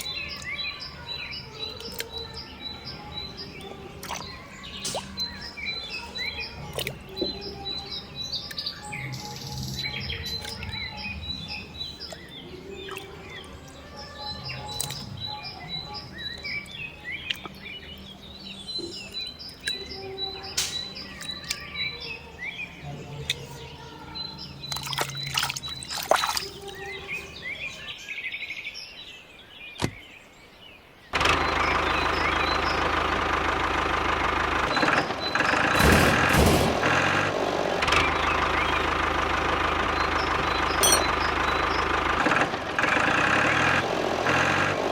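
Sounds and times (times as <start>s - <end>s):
birds chirping and calling: 0.0s - 44.9s
small engine running: 31.2s - 44.9s.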